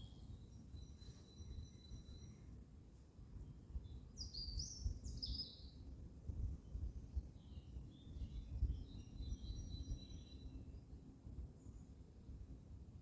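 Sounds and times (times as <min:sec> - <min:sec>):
songbird singing: 0:00.0 - 0:02.6, 0:03.4 - 0:05.9, 0:06.6 - 0:10.9.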